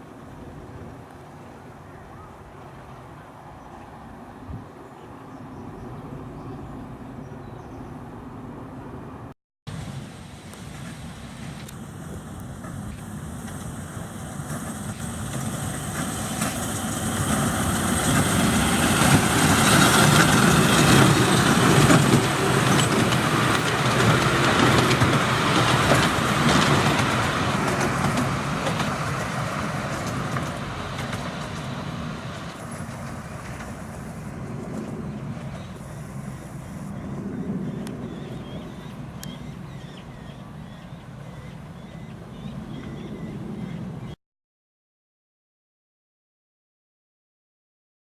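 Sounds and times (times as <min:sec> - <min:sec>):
train wheels clacking over rail joints: 0:12.6 - 0:35.9.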